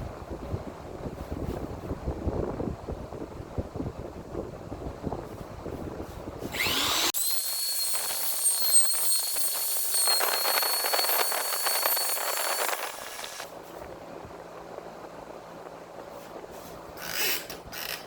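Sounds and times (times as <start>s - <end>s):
electric woodworking tool whining: 6.5s - 13.5s.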